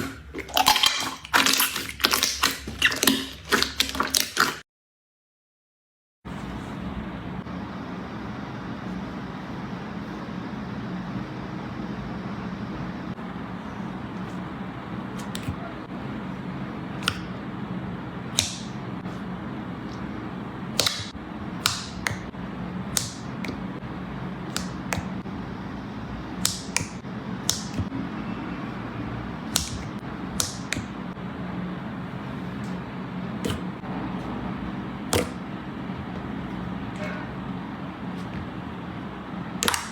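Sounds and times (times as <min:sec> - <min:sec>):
low background hum: 0:00.0 - 0:04.6, 0:06.3 - 0:39.9
slime popping and clicking: 0:20.8 - 0:22.3, 0:29.5 - 0:30.9, 0:39.6 - 0:39.9.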